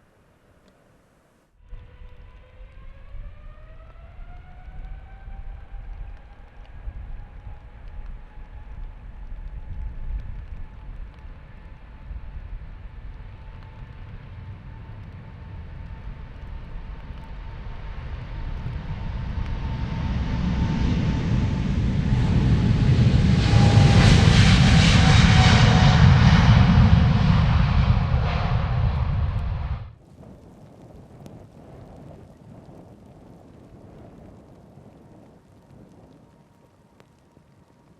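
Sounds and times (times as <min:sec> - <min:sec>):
jet airliner engines passing: 0:01.7 - 0:30.0.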